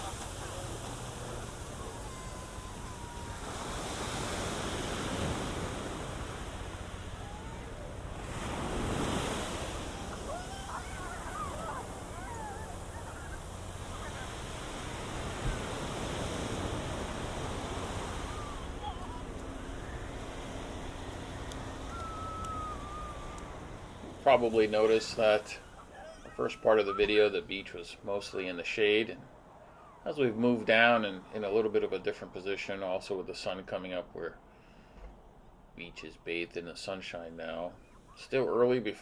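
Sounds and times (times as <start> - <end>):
ocean waves breaking on beach: 0.0 - 32.4
wind on microphone: 1.1 - 24.3.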